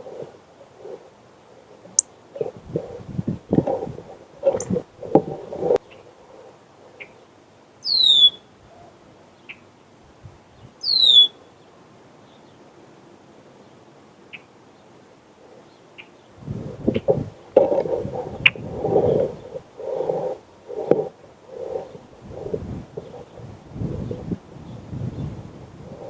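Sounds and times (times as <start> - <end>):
faint bird chirps: 6.9 - 9.7, 10.6 - 11.6.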